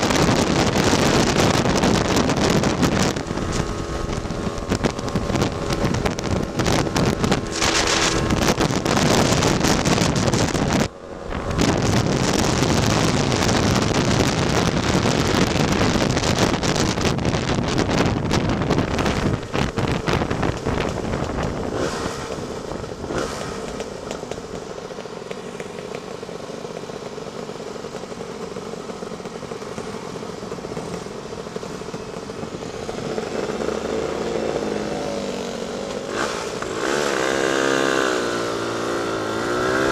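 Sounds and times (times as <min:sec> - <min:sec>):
wind noise on microphone: 0:00.0 - 0:24.4
scooter engine running: 0:00.0 - 0:39.9.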